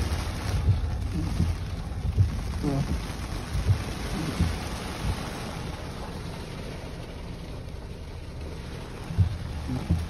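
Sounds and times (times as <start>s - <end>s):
low thuds: 0.0s - 6.1s, 8.7s - 10.0s
heavy rain: 0.0s - 10.0s
wind: 0.0s - 10.0s.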